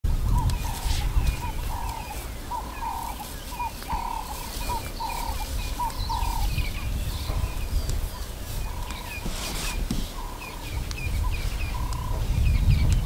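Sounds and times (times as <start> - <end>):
steady low rumble: 0.1 - 9.2
faint bird chirps: 0.2 - 13.0.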